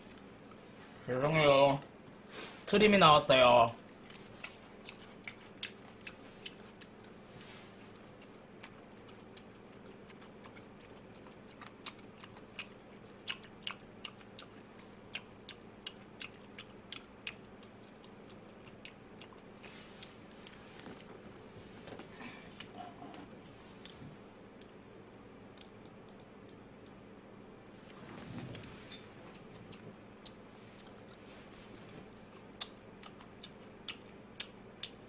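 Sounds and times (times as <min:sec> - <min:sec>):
person chewing crispy food: 0:03.8 - 0:21.3, 0:29.4 - 0:35.0.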